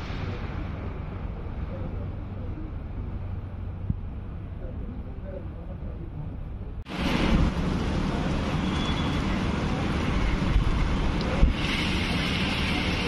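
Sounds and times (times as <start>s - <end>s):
wind rumbling on microphone: 0.0s - 13.0s
rain on metal roofs: 6.9s - 13.0s.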